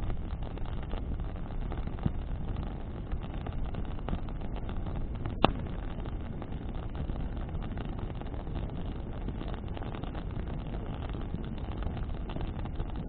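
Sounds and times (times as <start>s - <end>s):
bonfire flames rushing: 0.0s - 13.0s
fire crackling: 0.0s - 13.0s
wind on microphone: 0.0s - 13.0s
sharp loud pop: 5.4s - 5.6s.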